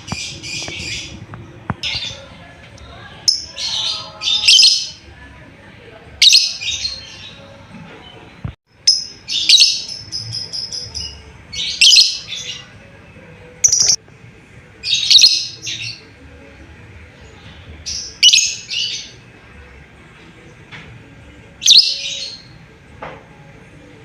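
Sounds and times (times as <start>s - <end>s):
lovebird shrill chirping calls: 13.6s - 14.0s.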